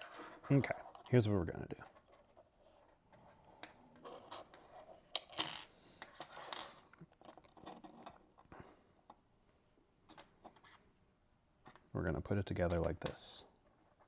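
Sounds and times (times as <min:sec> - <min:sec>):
plastic parts scraping: 0:00.0 - 0:08.5.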